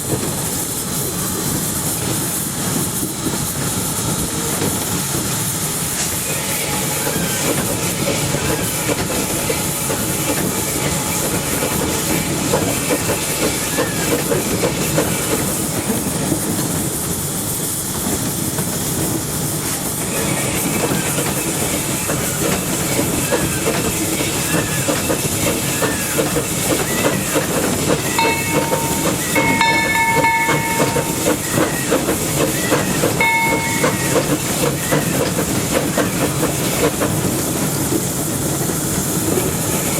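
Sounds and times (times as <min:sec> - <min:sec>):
steam hissing: 0:00.0 - 0:39.9
locomotive wheels clattering: 0:20.7 - 0:39.6
high ringing tones: 0:28.1 - 0:31.9, 0:33.1 - 0:34.9.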